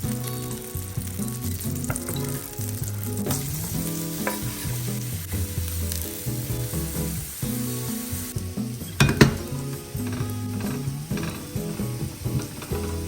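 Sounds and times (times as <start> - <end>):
food sizzling in a frying pan: 0.0 - 13.0
utensil clicking against pan: 9.0 - 13.0.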